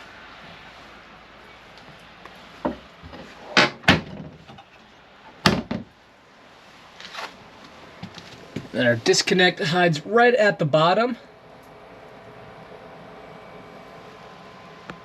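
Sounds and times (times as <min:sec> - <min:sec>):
cabinet doors knocking and clacking: 0:03.6 - 0:04.4, 0:05.4 - 0:05.9.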